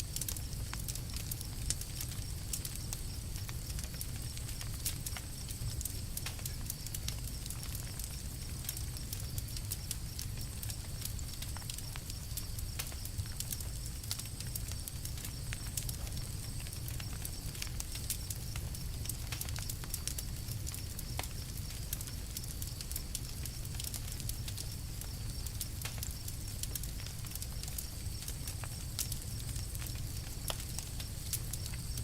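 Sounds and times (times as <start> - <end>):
campfire crackling: 0.0 - 32.0.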